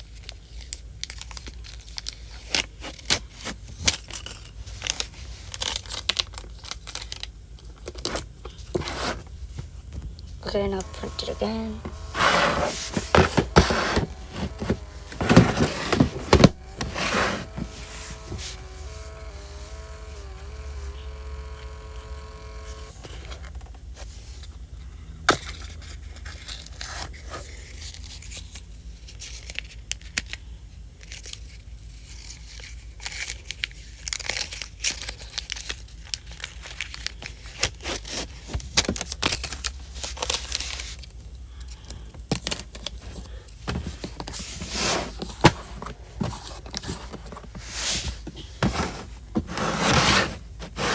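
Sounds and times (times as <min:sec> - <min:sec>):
paper rustling and tearing: 0:10.4 - 0:23.5, 0:43.0 - 0:50.9
sticker paper scraping and clicking: 0:10.4 - 0:23.6, 0:43.0 - 0:50.9
sticker printer whirring: 0:10.4 - 0:23.6, 0:48.4 - 0:50.9.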